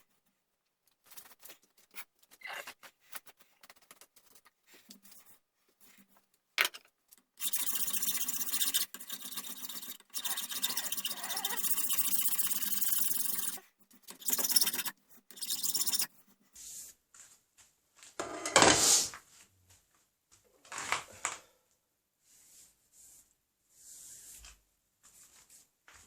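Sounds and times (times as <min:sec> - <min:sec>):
rasping scraping on wood: 0:07.4 - 0:16.2.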